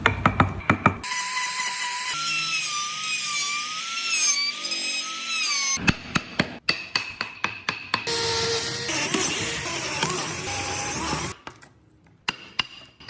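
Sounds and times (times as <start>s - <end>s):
power tool whining on wood: 8.1s - 11.4s.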